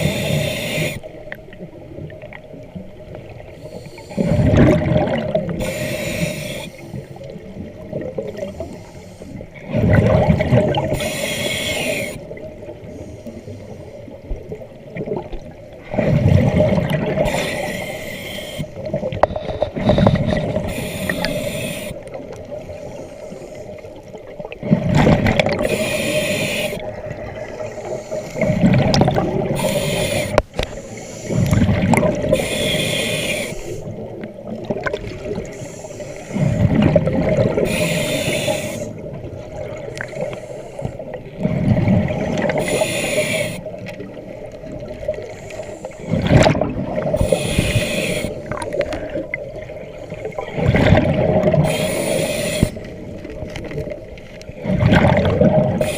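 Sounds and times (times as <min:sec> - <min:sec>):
diver inhaling through regulator: 0:00.0 - 0:01.1, 0:03.5 - 0:04.8, 0:05.4 - 0:07.2, 0:10.8 - 0:14.0, 0:17.1 - 0:22.1, 0:25.4 - 0:34.1, 0:35.4 - 0:36.8, 0:37.4 - 0:39.1, 0:40.0 - 0:41.6, 0:42.4 - 0:43.8, 0:45.1 - 0:49.3, 0:51.4 - 0:53.0
exhaled bubbles gurgling: 0:00.0 - 0:55.9.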